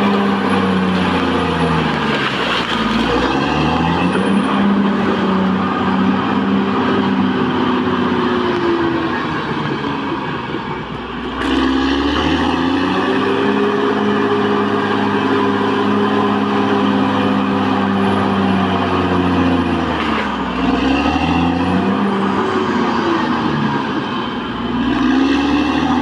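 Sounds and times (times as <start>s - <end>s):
bulldozer diesel engine working: 0.0s - 26.0s.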